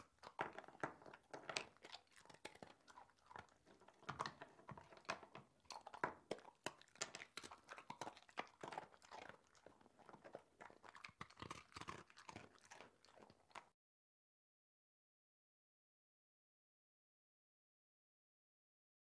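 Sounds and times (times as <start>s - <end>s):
puppy gnawing plastic toy: 0.0s - 13.7s.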